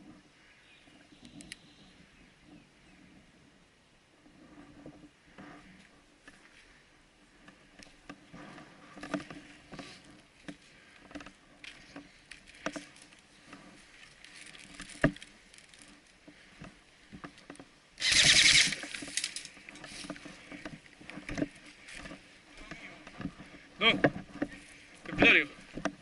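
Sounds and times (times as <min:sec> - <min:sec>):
rustling in undergrowth: 0:00.0 - 0:26.0
airsoft rifle full-auto burst: 0:18.0 - 0:18.8.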